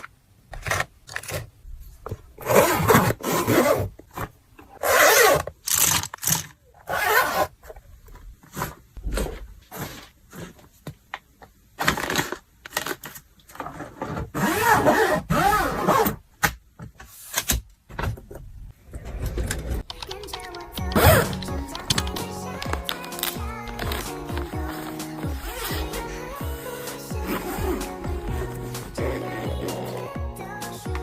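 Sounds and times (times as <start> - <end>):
crinkling: 20.5 - 25.8.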